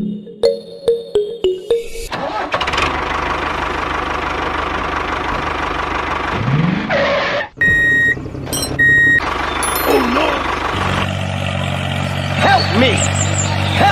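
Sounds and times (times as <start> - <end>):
tractor engine running: 2.1 - 13.9
high reversing beep: 7.6 - 10.5.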